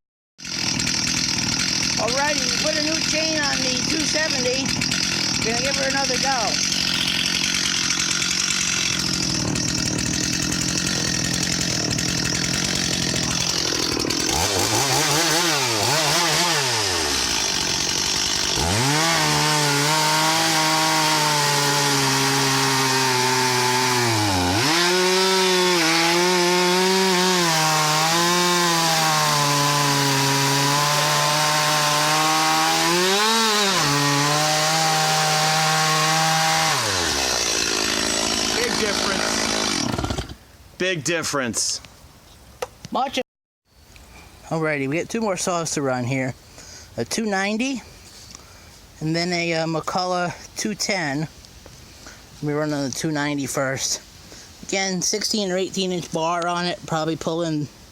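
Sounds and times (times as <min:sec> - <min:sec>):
chainsaw cutting wood: 0:00.4 - 0:40.5.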